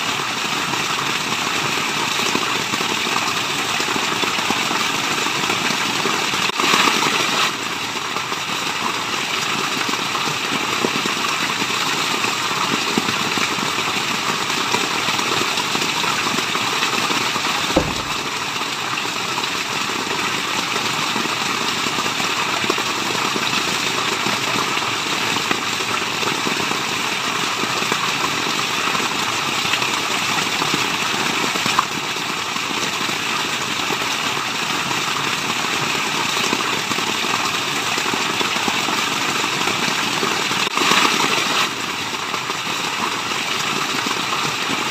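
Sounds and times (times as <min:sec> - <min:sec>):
waterfall rushing: 0:16.2 - 0:18.9
short knock: 0:17.7 - 0:18.4.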